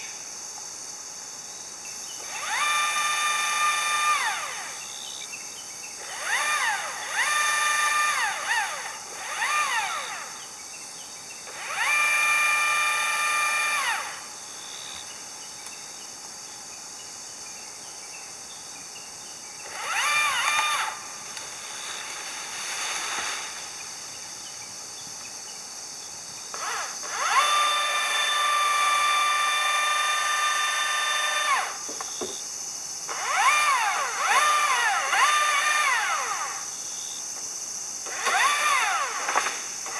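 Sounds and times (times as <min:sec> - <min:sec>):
power tool motor spinning: 0:06.0 - 0:10.3, 0:11.5 - 0:14.3, 0:19.6 - 0:23.5, 0:26.5 - 0:32.3, 0:33.1 - 0:36.7, 0:38.1 - 0:39.9.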